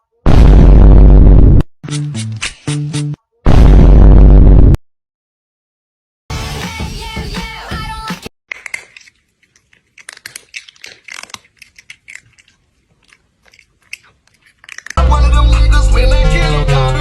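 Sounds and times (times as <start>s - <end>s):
loud music: 6.3s - 8.1s, 15.0s - 17.0s
crunching and clicking: 8.5s - 15.0s.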